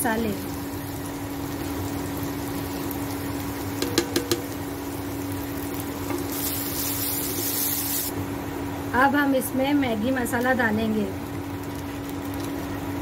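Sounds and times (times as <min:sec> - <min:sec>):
onions sizzling in oil: 0:00.0 - 0:08.2
sharp taps against pan: 0:03.8 - 0:04.6.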